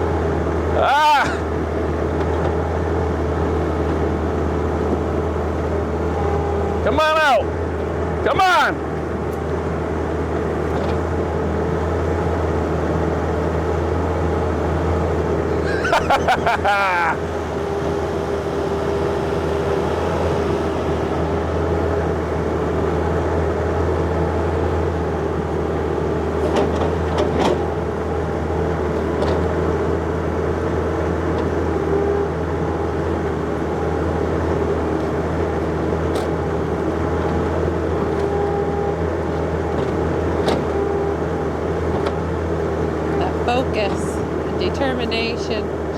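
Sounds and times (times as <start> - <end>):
excavator diesel engine running: 0.0 - 45.9
loud screech: 16.8 - 21.3.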